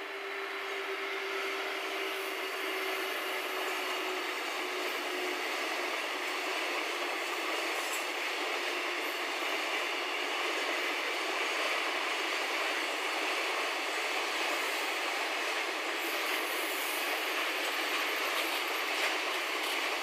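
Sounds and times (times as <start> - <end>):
freight train rumbling and rattling: 0.0 - 20.0
locomotive hum: 0.0 - 20.0.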